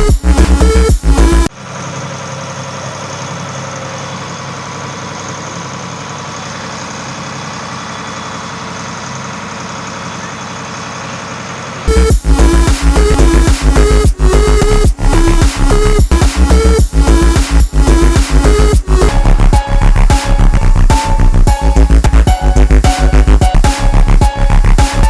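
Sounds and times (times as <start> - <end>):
electronic music: 0.0 - 1.5, 11.9 - 25.0
boat engine running: 0.0 - 25.0.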